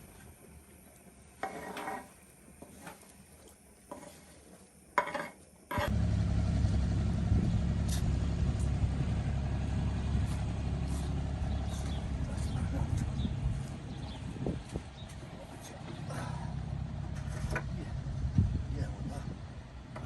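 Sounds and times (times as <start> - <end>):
engine running with low hum: 5.8 - 20.0.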